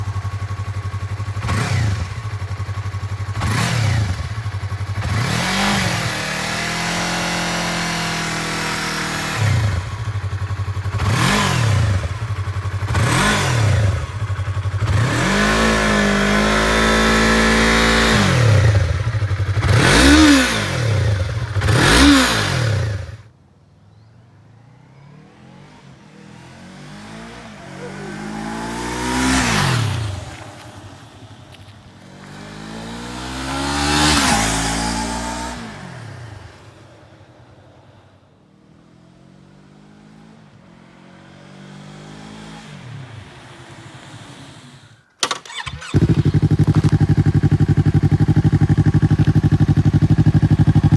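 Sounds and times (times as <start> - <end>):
faint engine: 0.0 - 50.9
motorcycle engine idling and revving: 0.0 - 50.9.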